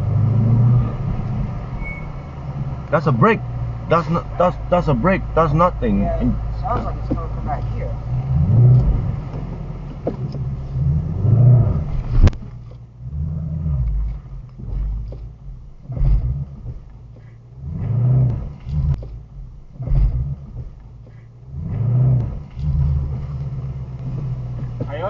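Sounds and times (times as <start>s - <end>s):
car engine rumble: 0.0s - 25.0s.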